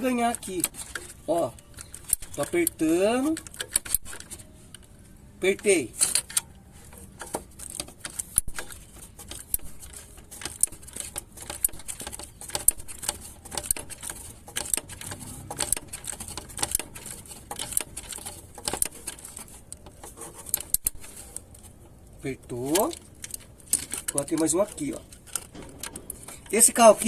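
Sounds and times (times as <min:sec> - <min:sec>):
socket ratchet clicking: 0:00.1 - 0:04.4.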